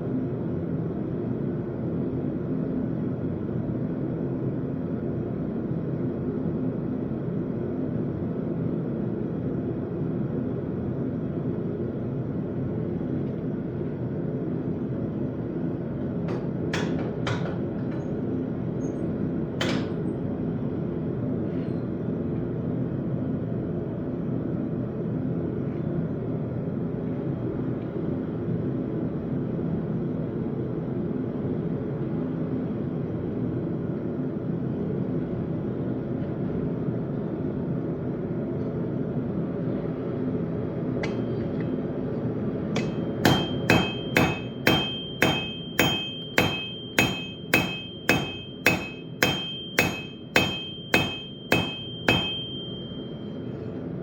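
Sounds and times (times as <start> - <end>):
ringing metal clanks: 41.0 - 41.7, 42.8 - 53.4.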